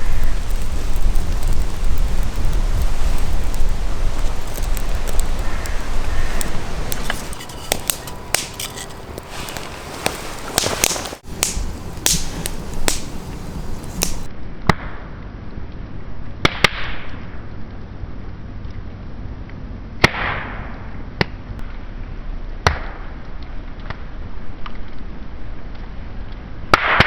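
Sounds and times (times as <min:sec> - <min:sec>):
sharp pops from fire: 0:00.0 - 0:14.3
wood fire crackling: 0:00.0 - 0:14.3.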